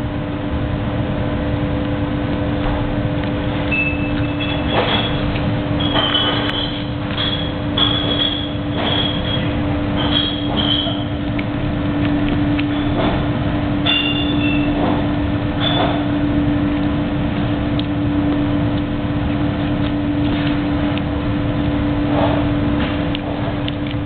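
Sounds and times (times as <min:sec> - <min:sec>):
kitchen machine drone: 0:00.0 - 0:24.0
short high squeaks: 0:03.7 - 0:11.2, 0:13.8 - 0:14.8, 0:15.6 - 0:16.0.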